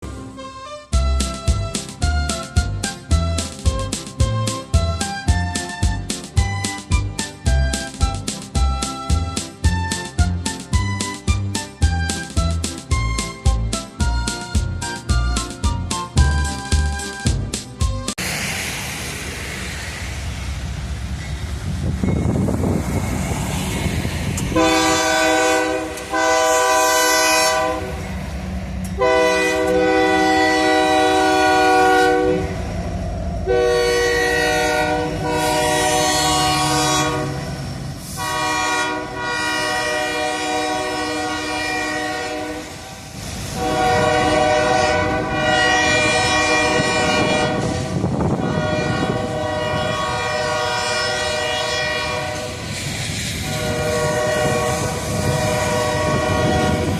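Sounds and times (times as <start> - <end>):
locomotive air horn blasts: 0.0 - 1.4, 24.5 - 28.0, 29.0 - 32.6, 33.4 - 42.8, 43.5 - 52.7, 53.4 - 56.9
passing train rumble: 0.0 - 56.9.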